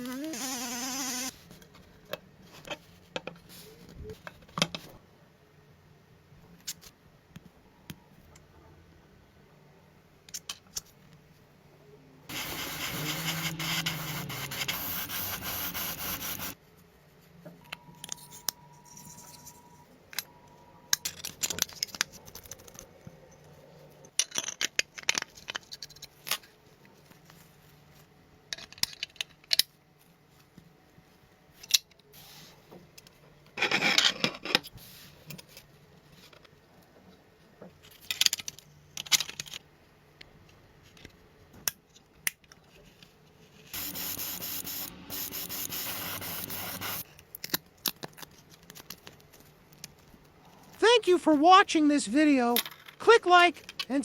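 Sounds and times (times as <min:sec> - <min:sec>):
loud even hiss: 0:43.8 - 0:47.0.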